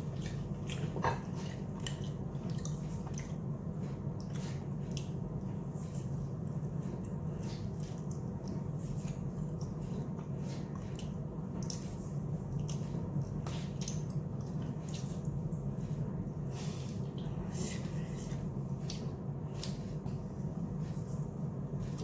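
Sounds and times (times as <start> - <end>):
wet chewing and lip smacks: 0.0 - 15.7
steady low hum: 0.0 - 22.0.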